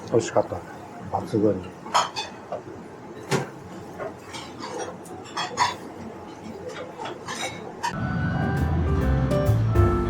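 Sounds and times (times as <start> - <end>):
low background noise: 0.0 - 10.0
dishes and cutlery clinking: 1.8 - 2.4, 3.2 - 8.0.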